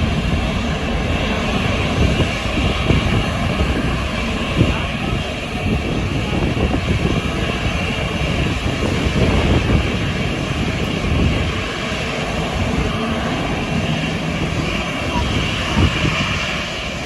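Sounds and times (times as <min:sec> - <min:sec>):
airliner engine rumble: 0:00.0 - 0:17.0.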